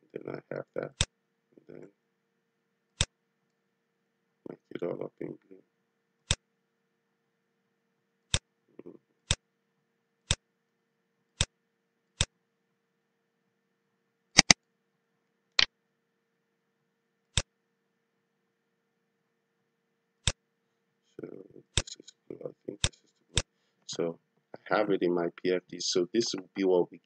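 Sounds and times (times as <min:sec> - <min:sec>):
computer mouse button clicking: 0:14.4 - 0:14.6.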